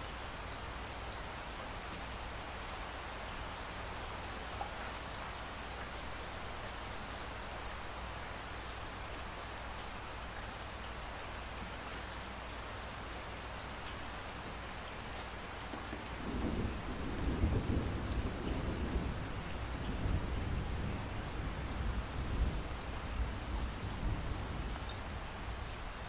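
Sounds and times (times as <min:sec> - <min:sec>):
rain falling: 0:00.0 - 0:26.0
thunder rumbling: 0:16.0 - 0:24.8
raindrop ticks: 0:18.0 - 0:20.6, 0:23.8 - 0:24.1.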